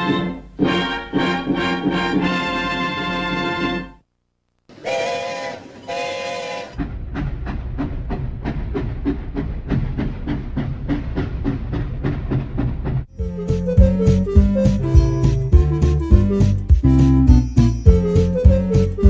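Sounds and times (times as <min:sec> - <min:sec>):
music: 0:00.0 - 0:04.0, 0:13.1 - 0:19.0
steam locomotive whistle: 0:04.7 - 0:06.8
steam engine chuffing: 0:04.7 - 0:13.0.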